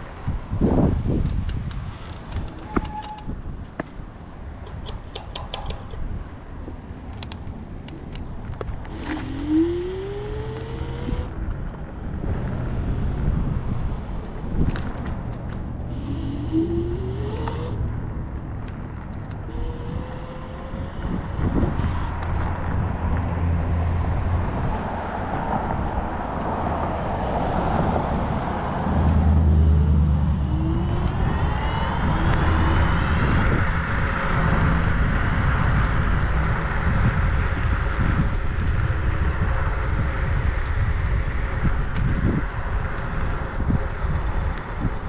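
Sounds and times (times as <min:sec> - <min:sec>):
low vehicle rumble: 0:00.0 - 0:45.0
road traffic noise: 0:00.0 - 0:45.0
short rising whines: 0:08.9 - 0:11.4, 0:15.8 - 0:18.0, 0:19.4 - 0:22.1, 0:27.4 - 0:33.5.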